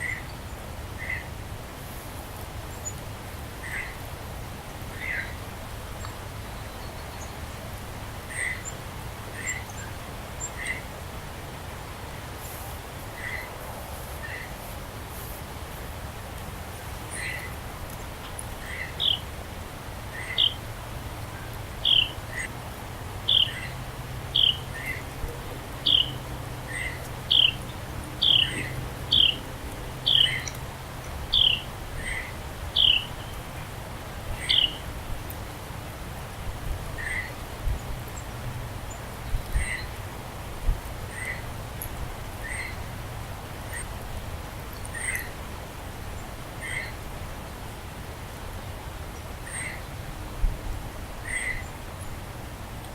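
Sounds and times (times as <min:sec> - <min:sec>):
lower bird calls: 0:20.1 - 0:20.6, 0:21.4 - 0:22.6, 0:23.3 - 0:25.1, 0:25.8 - 0:30.6, 0:31.3 - 0:33.4, 0:34.3 - 0:34.8, 0:37.0 - 0:37.4, 0:39.5 - 0:39.9, 0:41.1 - 0:41.5, 0:42.4 - 0:42.9, 0:44.9 - 0:45.4, 0:46.6 - 0:47.0, 0:49.4 - 0:49.9, 0:51.2 - 0:51.8
high-pitched bird calls: 0:23.3 - 0:25.0, 0:25.8 - 0:29.4, 0:30.1 - 0:30.6, 0:31.3 - 0:33.1.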